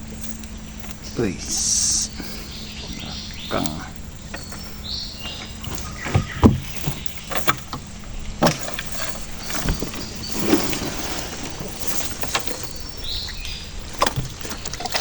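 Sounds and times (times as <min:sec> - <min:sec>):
steady low hum: 0:00.0 - 0:15.0
knocks on wooden boat: 0:05.3 - 0:07.8.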